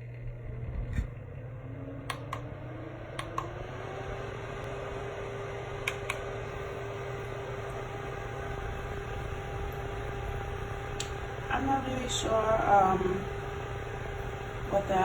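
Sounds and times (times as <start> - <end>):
desk fan whirring: 0.0 - 15.0
sharp clicks: 5.8 - 6.3, 11.0 - 11.2.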